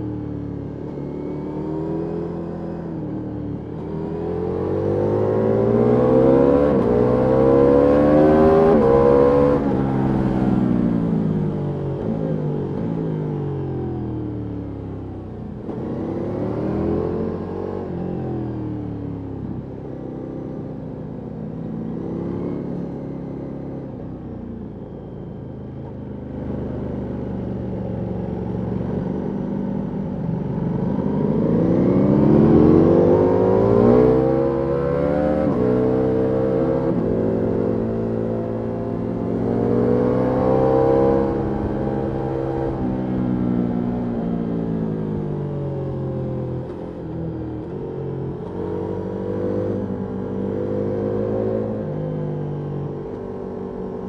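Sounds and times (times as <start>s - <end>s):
motorcycle engine revving: 0.0s - 13.1s, 26.3s - 54.0s.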